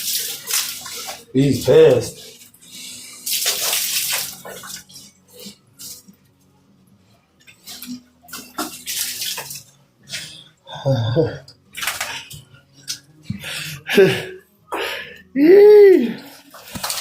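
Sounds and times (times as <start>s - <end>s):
water splashing onto pigs: 0.0s - 2.3s, 3.2s - 6.0s, 7.7s - 9.8s, 11.7s - 13.0s, 16.6s - 17.0s.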